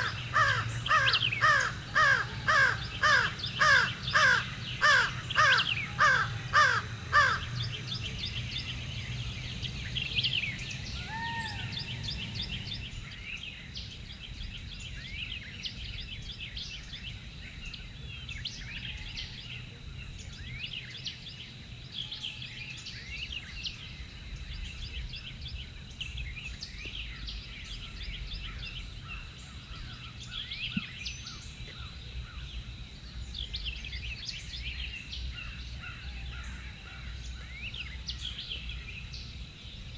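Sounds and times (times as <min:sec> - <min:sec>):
crow cawing: 0:00.0 - 0:07.6, 0:10.9 - 0:12.8
songbirds chirping and singing: 0:00.0 - 0:15.4.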